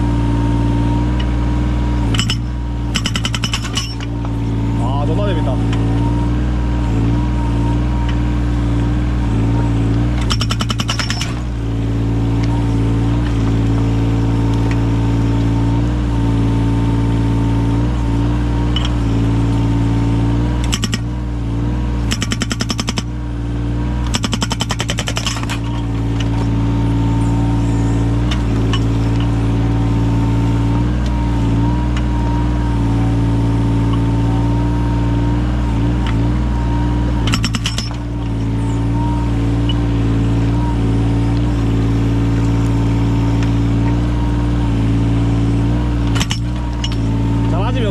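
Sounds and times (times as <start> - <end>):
diesel engine running: 0.0 - 47.9
hydraulic breaker hammering: 2.0 - 4.8, 10.1 - 11.6, 20.6 - 21.1, 22.0 - 23.2, 24.0 - 26.6, 35.7 - 38.6, 46.0 - 47.9.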